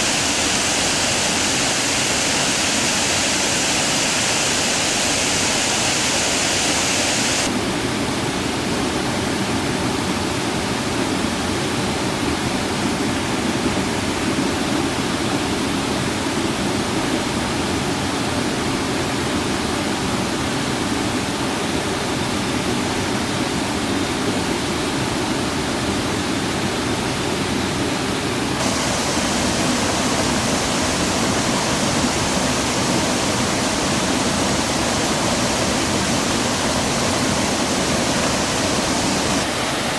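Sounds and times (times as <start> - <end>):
waterfall rushing: 0.0 - 7.5, 28.6 - 39.9.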